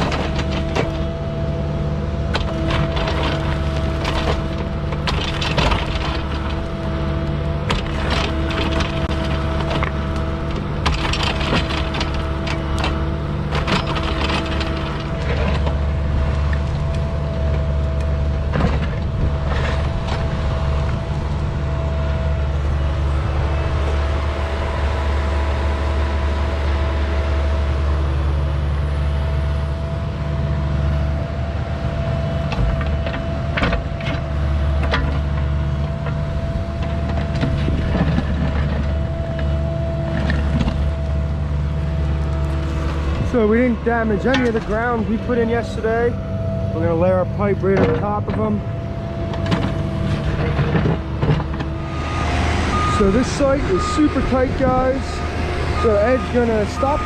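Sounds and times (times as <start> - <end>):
excavator diesel engine running: 0.0 - 57.0
knocks and scrapes: 2.3 - 17.7.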